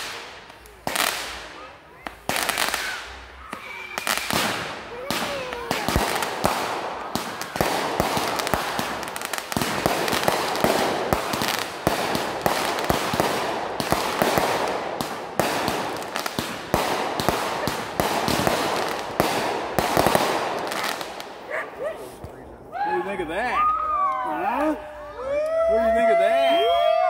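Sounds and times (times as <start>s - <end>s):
fireworks bangs and pops: 0.0s - 22.4s.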